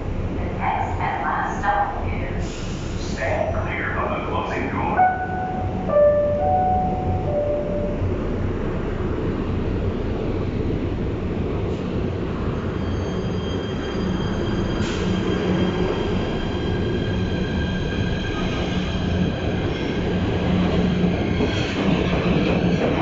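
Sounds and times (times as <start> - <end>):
train wheels rumbling on rail: 7.3 - 23.0.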